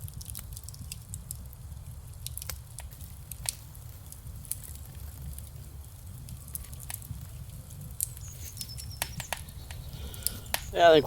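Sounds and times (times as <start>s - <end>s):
low fire rumble: 0.0s - 11.0s
wood fire crackling: 0.0s - 11.0s
sharp pops: 8.0s - 11.0s.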